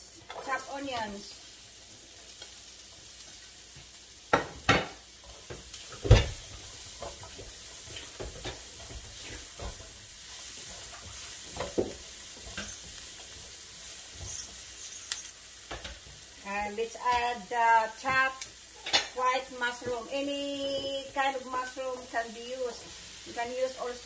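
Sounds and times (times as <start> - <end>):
onions sizzling in oil: 0.0 - 24.0
spatula stirring and scraping: 5.2 - 16.3.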